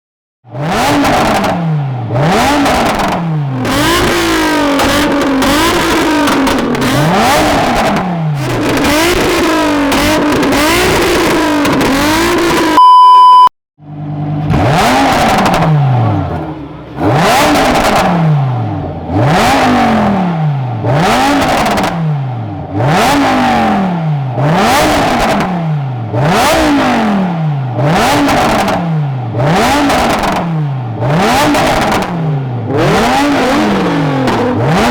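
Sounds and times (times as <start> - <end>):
sports car engines revving: 0.5 - 12.8, 13.8 - 34.9
loud steady beep tone: 12.8 - 13.5.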